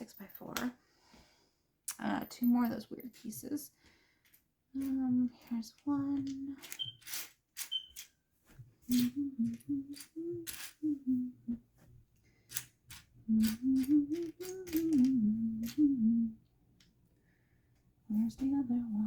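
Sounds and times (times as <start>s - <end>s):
plastic blocks clicking: 6.2s - 8.1s, 8.9s - 10.8s, 12.5s - 15.9s
woman humming: 8.9s - 11.7s, 13.3s - 16.5s.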